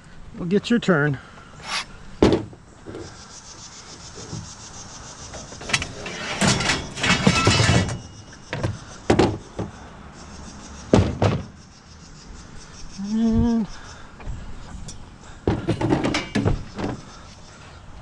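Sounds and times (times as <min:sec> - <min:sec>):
scrap metal knocking and scraping: 0:05.3 - 0:09.7, 0:14.8 - 0:17.1
scrap metal clanks: 0:05.4 - 0:08.2, 0:14.8 - 0:17.0.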